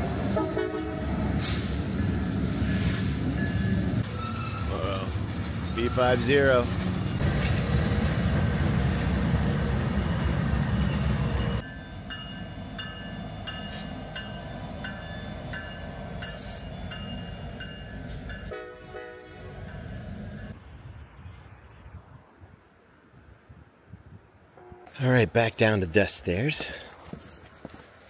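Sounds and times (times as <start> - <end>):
freight train engine and wheel rumble: 0.0 - 21.1.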